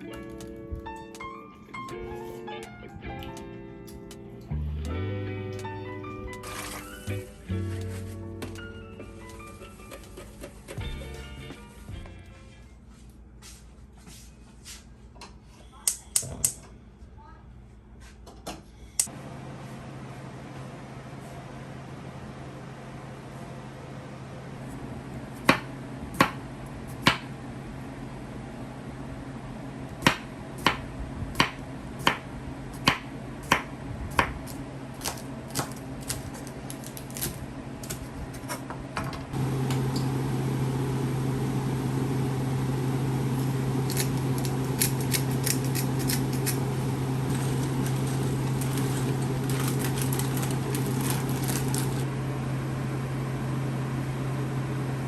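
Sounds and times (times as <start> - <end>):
motor-driven appliance humming: 20.6 - 55.0.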